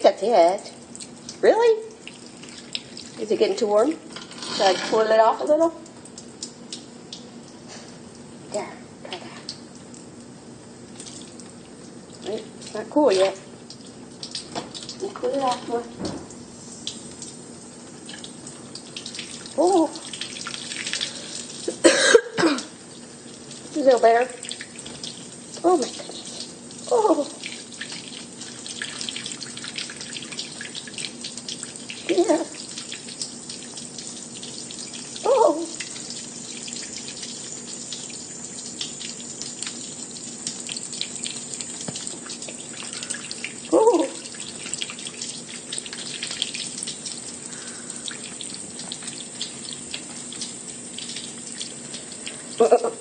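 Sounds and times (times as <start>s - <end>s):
tap water running into sink: 0.0s - 7.7s, 10.9s - 53.0s
small splashes and drips: 0.0s - 53.0s
person saying oh: 19.6s - 20.0s.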